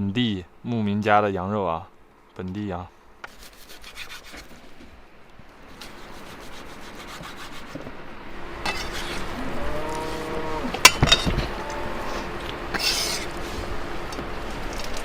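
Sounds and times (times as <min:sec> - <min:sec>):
rough rubbing and scraping: 0:03.2 - 0:04.9, 0:05.7 - 0:08.0, 0:08.6 - 0:15.0.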